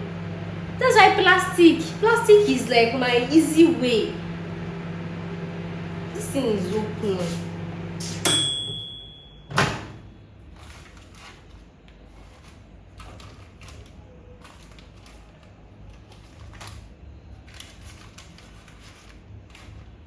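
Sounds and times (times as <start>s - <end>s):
microwave oven humming: 0.0s - 10.4s.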